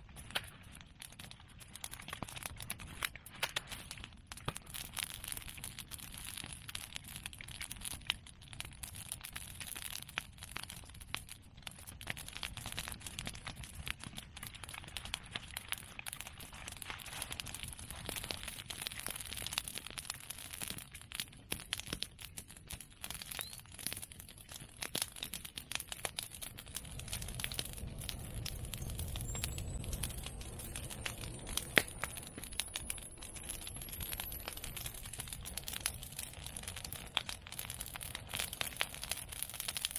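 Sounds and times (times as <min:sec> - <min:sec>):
fire crackling and popping: 0:00.0 - 0:39.9
low rumble of flame: 0:00.0 - 0:39.9
sharp crack: 0:24.9 - 0:39.9
faint rising whistle: 0:28.1 - 0:34.9.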